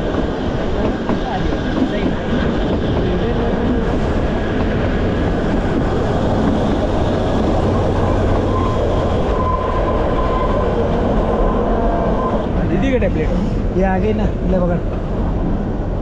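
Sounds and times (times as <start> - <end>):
train rumbling and rattling on rails: 0.0 - 16.0.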